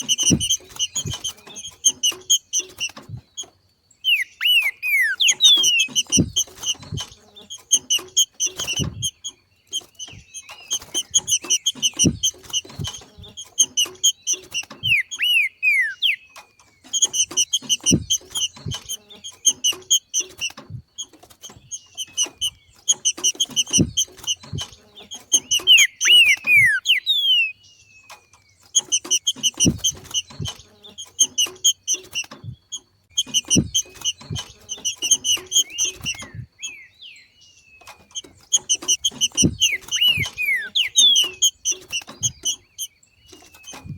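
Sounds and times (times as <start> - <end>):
bird whistled glides: 0.0 - 18.8, 21.4 - 43.9
bird chattering call: 4.0 - 20.3, 21.8 - 27.6, 33.1 - 37.1, 38.1 - 43.9.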